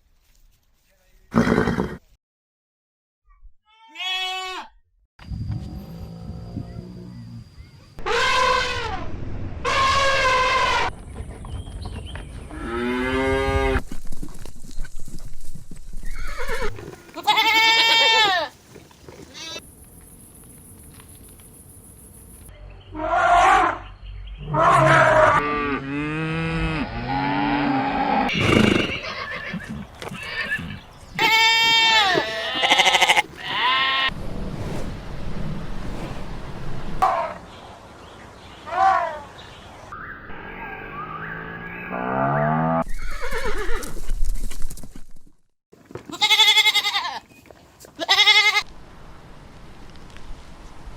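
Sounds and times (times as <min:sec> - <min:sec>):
farm animals bleating: 0:03.7 - 0:04.8, 0:16.1 - 0:18.6, 0:19.3 - 0:19.6, 0:28.3 - 0:34.1, 0:46.0 - 0:47.3, 0:48.0 - 0:48.7.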